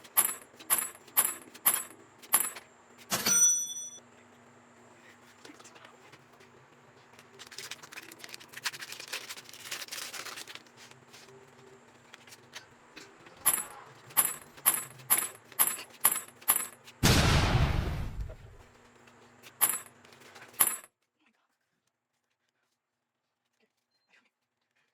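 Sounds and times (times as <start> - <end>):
foil pack crinkling: 7.0 - 13.1.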